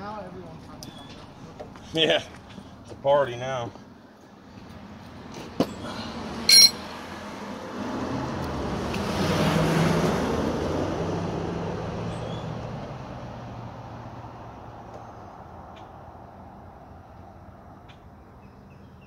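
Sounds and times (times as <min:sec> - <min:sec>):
vehicle passing on road: 0:01.2 - 0:18.9
short high beep: 0:06.5 - 0:06.8.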